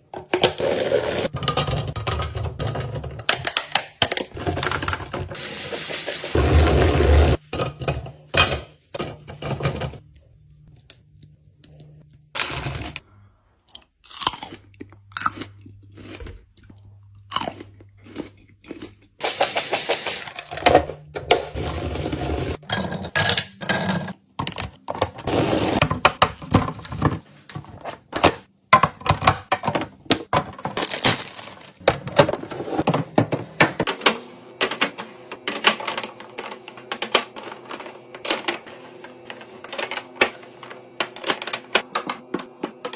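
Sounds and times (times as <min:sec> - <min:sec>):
plastic containers clicking and knocking: 0:01.3 - 0:05.3, 0:24.4 - 0:37.4.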